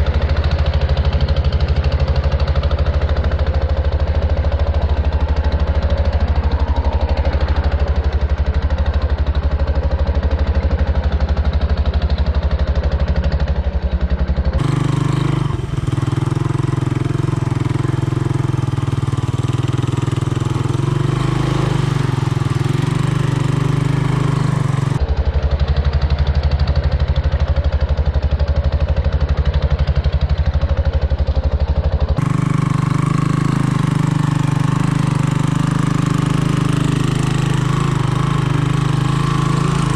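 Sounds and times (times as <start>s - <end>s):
three-wheeler engine running: 0.0s - 39.9s.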